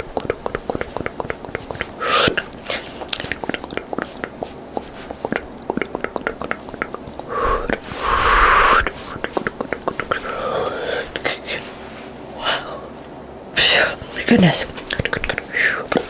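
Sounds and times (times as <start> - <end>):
wet tongue and lip clicks: 0.0 - 11.4, 14.7 - 16.0
breathy whisper: 0.4 - 13.0, 13.6 - 16.0.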